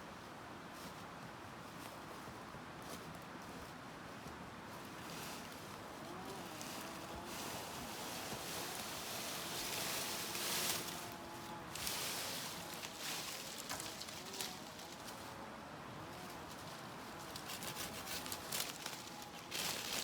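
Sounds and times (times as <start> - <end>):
outdoor rustling: 4.1 - 20.0.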